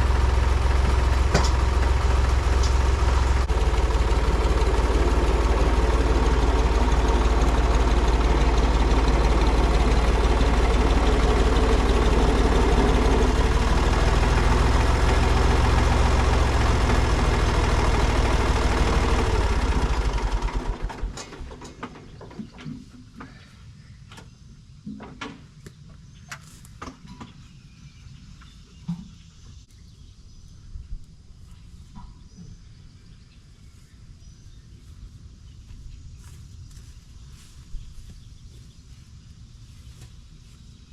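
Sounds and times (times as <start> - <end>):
heavy engine idling: 0.0 - 23.5.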